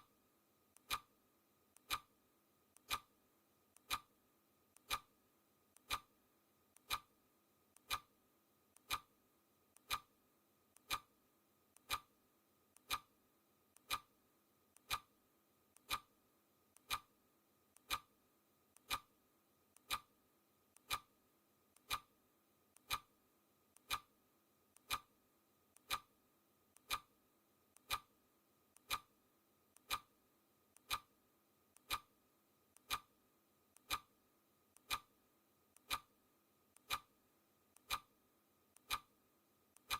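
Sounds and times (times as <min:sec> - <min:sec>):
clock ticking: 0:00.8 - 0:01.1, 0:01.8 - 0:02.1, 0:02.7 - 0:03.1, 0:03.7 - 0:04.1, 0:04.7 - 0:05.1, 0:05.7 - 0:06.1, 0:06.7 - 0:07.1, 0:07.7 - 0:08.1, 0:08.7 - 0:09.1, 0:09.7 - 0:10.1, 0:10.7 - 0:11.1, 0:11.7 - 0:12.1, 0:12.7 - 0:13.1, 0:13.7 - 0:14.1, 0:14.7 - 0:15.1, 0:15.7 - 0:16.1, 0:16.7 - 0:17.1, 0:17.7 - 0:18.1, 0:18.7 - 0:19.1, 0:19.7 - 0:20.1, 0:20.7 - 0:21.1, 0:21.7 - 0:22.1, 0:22.8 - 0:23.1, 0:23.7 - 0:24.1, 0:24.7 - 0:25.1, 0:25.7 - 0:26.1, 0:26.7 - 0:31.1, 0:31.8 - 0:33.2, 0:33.8 - 0:38.1, 0:38.8 - 0:39.2.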